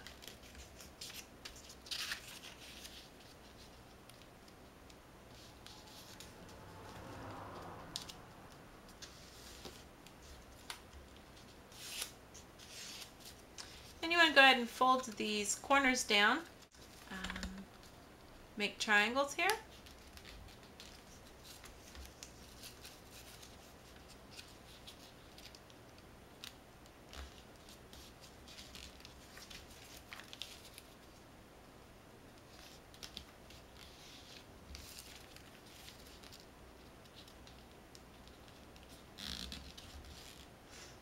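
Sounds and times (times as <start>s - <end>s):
paper rustling and creasing: 0.0s - 4.6s, 5.3s - 8.2s, 8.9s - 14.0s, 19.6s - 31.2s, 32.4s - 40.5s.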